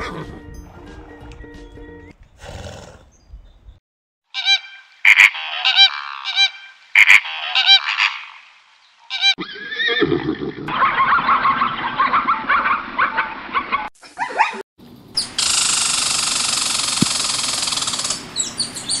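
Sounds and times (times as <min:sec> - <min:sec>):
fowl calling: 0:04.3 - 0:09.6
sharp clicks: 0:15.4 - 0:18.2.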